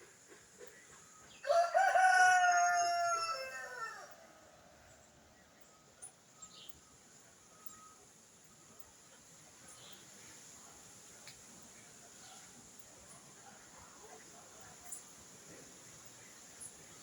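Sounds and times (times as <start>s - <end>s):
rooster crowing: 1.4s - 4.5s.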